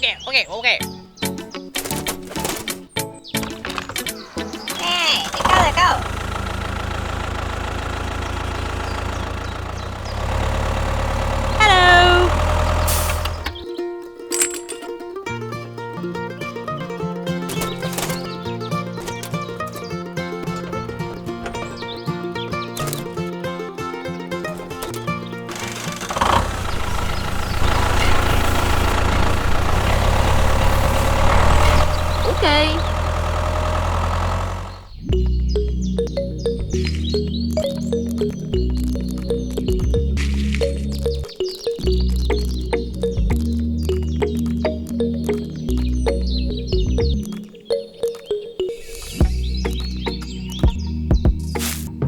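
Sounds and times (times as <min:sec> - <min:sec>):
tractor engine idling: 0:04.2 - 0:13.7, 0:16.5 - 0:47.3.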